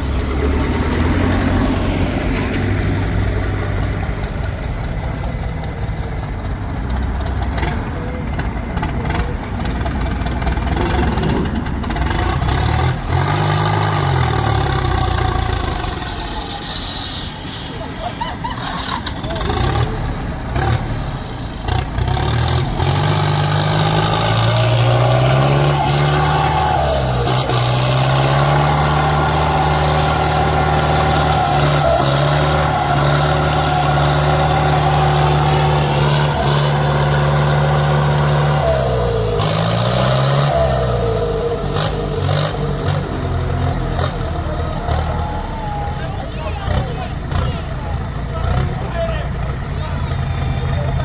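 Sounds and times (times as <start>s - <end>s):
heavy diesel engine revving: 0.0s - 51.0s.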